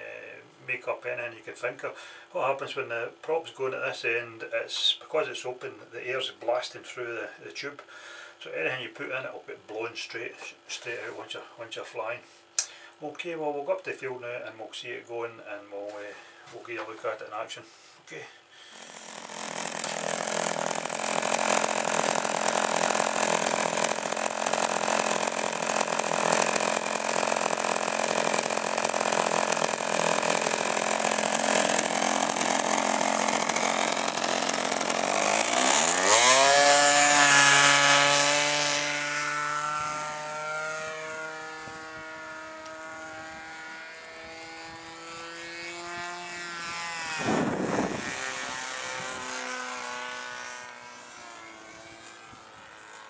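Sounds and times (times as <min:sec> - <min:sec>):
model airplane motor: 0:18.5 - 0:53.0.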